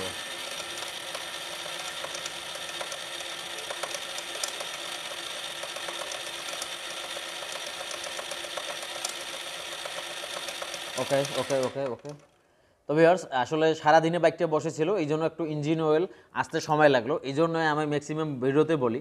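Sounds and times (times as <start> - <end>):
electric starter cranking engine: 0.0 - 12.4.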